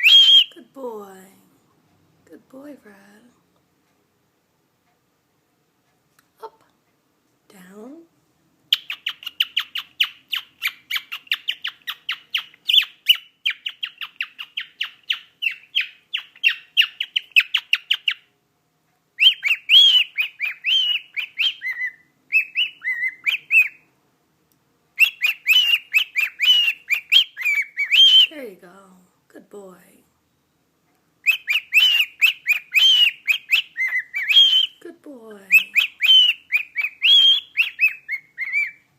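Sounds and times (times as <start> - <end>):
cockatiel chirping and whistling: 0.0 - 0.5, 8.7 - 18.3, 19.2 - 23.8, 25.0 - 28.3, 31.2 - 34.8, 35.5 - 38.9.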